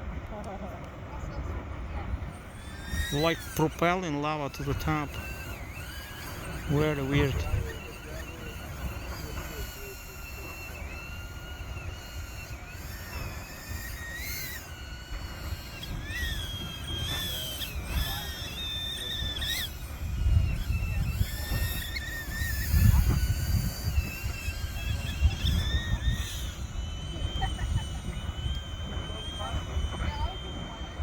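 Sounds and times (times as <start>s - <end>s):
volcano rumbling: 0.0s - 5.2s
faint high whistling tones: 0.0s - 31.0s.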